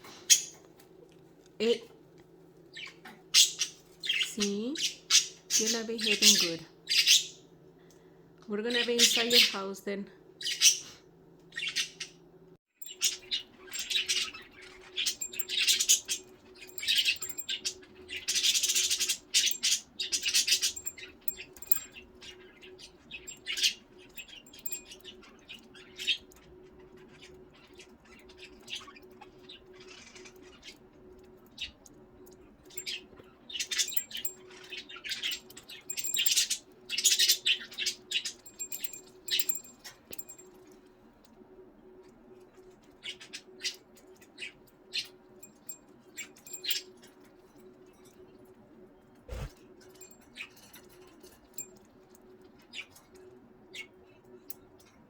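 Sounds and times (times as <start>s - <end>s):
budgerigars chirping and chattering: 2.8s - 7.4s, 11.6s - 12.2s, 12.8s - 30.9s
steady low hum: 11.0s - 42.9s.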